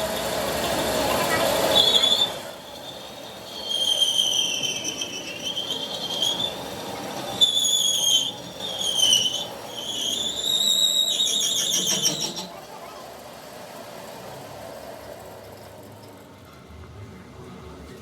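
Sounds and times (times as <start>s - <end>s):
metal-on-metal squealing: 1.7s - 12.6s.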